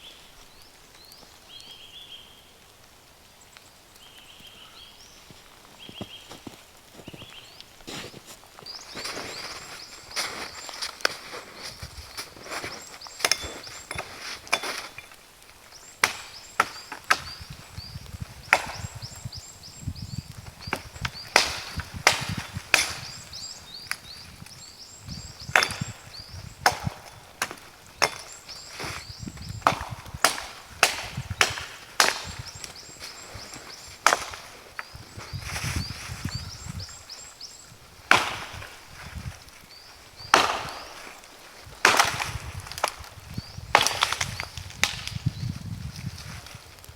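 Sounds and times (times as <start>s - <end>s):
wood being chopped: 8.9s - 37.0s, 38.0s - 46.2s.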